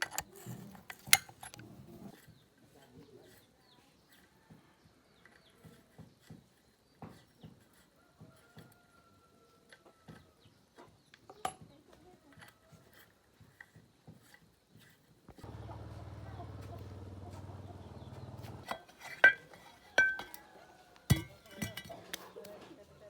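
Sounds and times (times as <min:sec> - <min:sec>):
steady low hum: 0:15.3 - 0:18.7.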